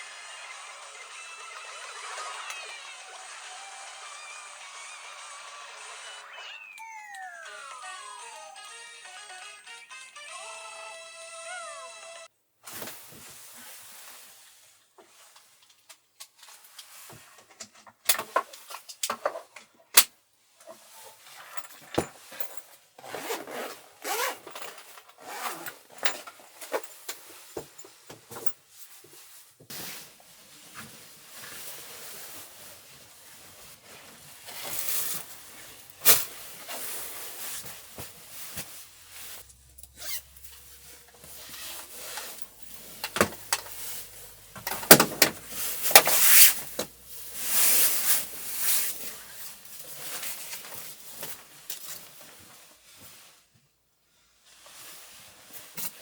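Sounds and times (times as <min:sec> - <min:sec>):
zipper-like scraping: 0:23.0 - 0:24.4, 0:25.2 - 0:25.9, 0:34.5 - 0:44.4
rustling and rubbing: 0:28.7 - 0:53.4.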